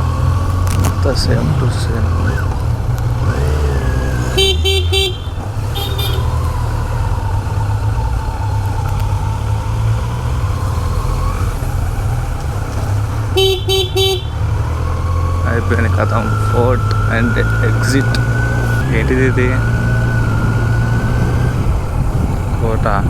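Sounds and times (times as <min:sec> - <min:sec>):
motorcycle engine running: 0:00.0 - 0:23.0
road and wind noise: 0:00.0 - 0:23.0
horn beeping: 0:04.1 - 0:06.8, 0:13.1 - 0:20.4.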